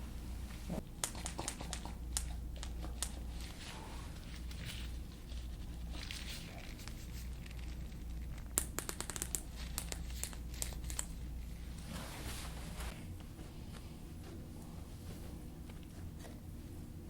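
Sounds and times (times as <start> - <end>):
low steady hum: 0.0 - 17.0
crinkling: 0.4 - 13.8.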